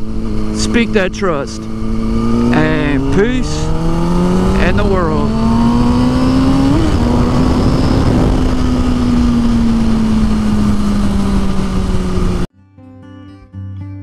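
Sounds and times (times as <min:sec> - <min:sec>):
motorcycle engine running: 0:00.0 - 0:12.5
wind noise: 0:05.3 - 0:12.5.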